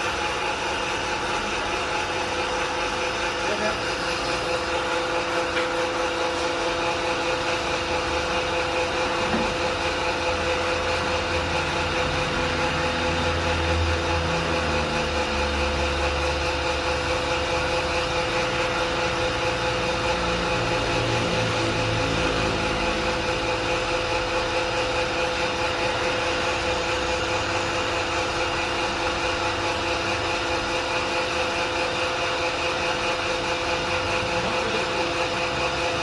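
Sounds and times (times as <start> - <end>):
pellet mill motor hum: 0.0 - 36.0.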